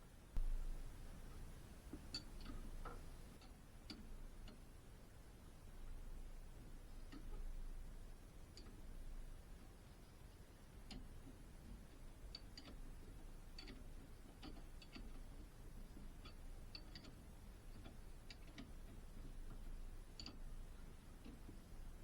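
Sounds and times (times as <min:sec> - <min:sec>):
low steady hum: 0:00.0 - 0:22.0
faint light clicks: 0:09.6 - 0:22.0.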